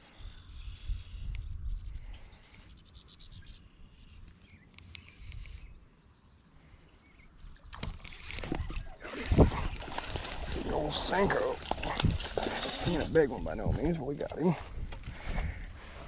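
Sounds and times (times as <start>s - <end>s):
wind buffeting the microphone: 0.0s - 2.5s, 7.6s - 16.0s
water splashing: 7.7s - 14.5s.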